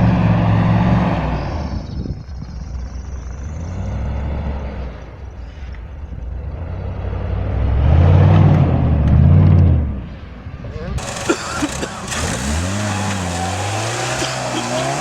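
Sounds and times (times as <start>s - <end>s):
off-road engine revving: 0.0s - 2.0s, 2.7s - 10.3s, 10.9s - 15.0s.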